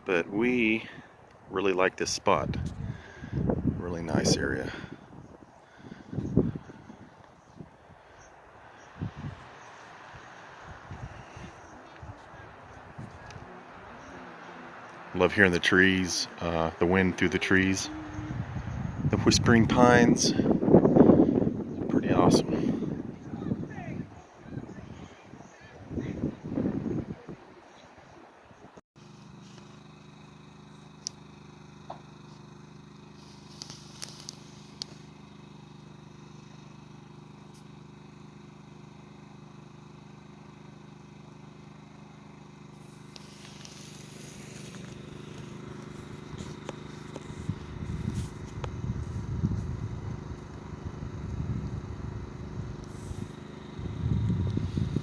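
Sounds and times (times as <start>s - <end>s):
steady low hum: 0.0s - 55.0s
wind through pine trees: 0.0s - 55.0s
wind buffeting microphone: 2.4s - 8.0s, 8.9s - 13.5s, 17.9s - 27.5s, 46.1s - 55.0s.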